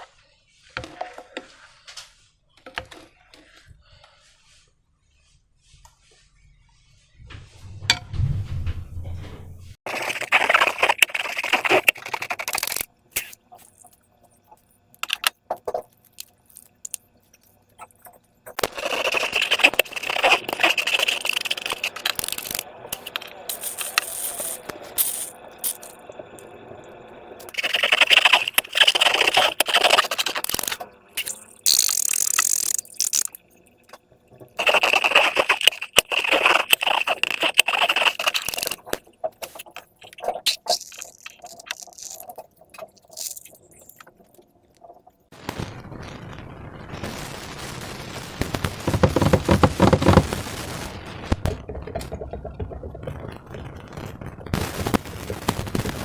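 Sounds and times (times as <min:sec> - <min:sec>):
slime squishing and crackling: 0:09.9 - 0:13.7, 0:18.5 - 0:24.6, 0:27.5 - 0:33.5, 0:34.6 - 0:44.2, 0:48.5 - 0:50.5
small clicks and scrapes: 0:09.9 - 0:26.5, 0:27.4 - 0:45.3, 0:48.8 - 0:50.4.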